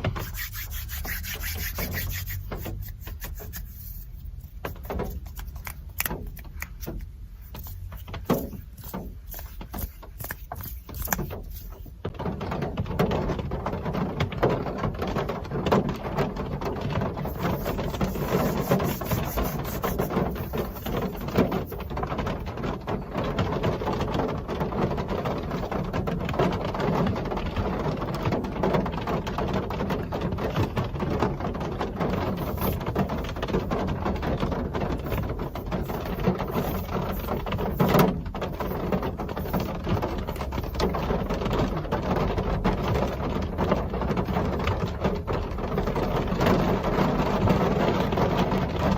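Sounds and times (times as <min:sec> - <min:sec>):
rain pattering: 0:21.2 - 0:48.9.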